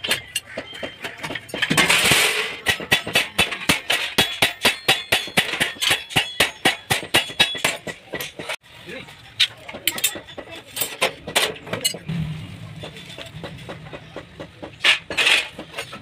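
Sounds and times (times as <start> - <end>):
hammer striking sheet metal: 1.7 - 8.0.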